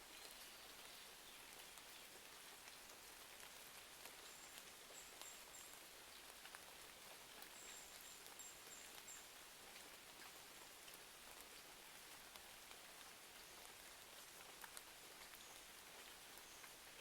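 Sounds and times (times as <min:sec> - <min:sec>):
faint steady rain: 0:00.0 - 0:17.0.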